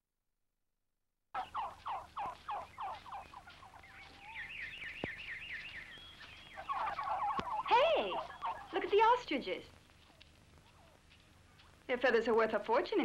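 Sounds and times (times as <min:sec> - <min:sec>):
bird calls falling in pitch: 0:01.4 - 0:08.8.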